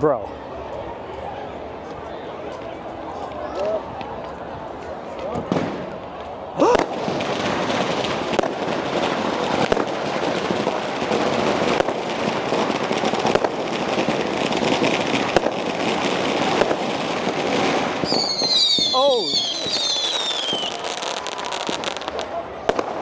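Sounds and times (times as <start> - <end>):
firecrackers crackling: 0.3 - 23.0
sharp firecracker bangs: 5.3 - 23.0.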